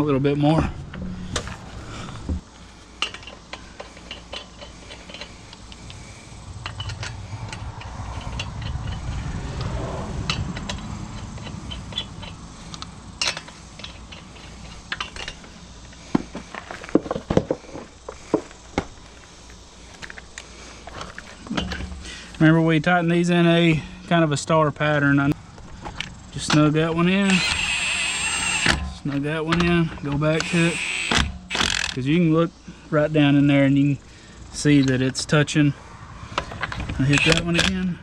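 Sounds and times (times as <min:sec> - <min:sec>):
low rumble: 0:00.6 - 0:02.6, 0:05.7 - 0:13.2
metal clinks and rattles: 0:03.0 - 0:06.0, 0:06.6 - 0:09.3.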